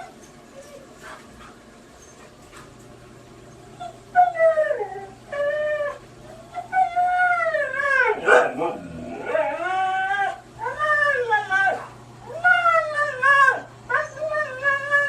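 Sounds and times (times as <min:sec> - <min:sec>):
dog howling: 0:03.8 - 0:15.0.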